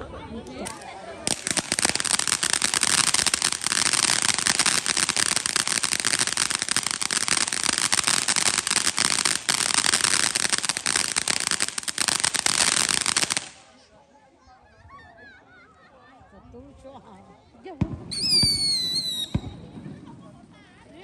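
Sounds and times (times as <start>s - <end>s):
firecrackers popping: 0.4s - 13.8s, 17.8s - 20.9s.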